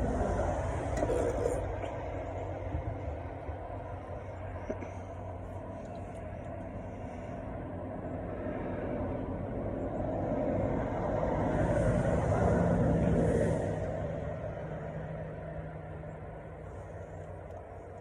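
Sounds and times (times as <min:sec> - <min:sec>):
low rumbling: 0:00.0 - 0:10.2.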